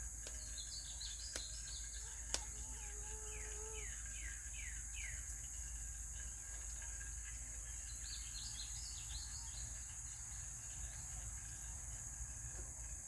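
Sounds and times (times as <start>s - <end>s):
insect drone: 0.0s - 13.0s
songbird chirping: 0.2s - 5.3s.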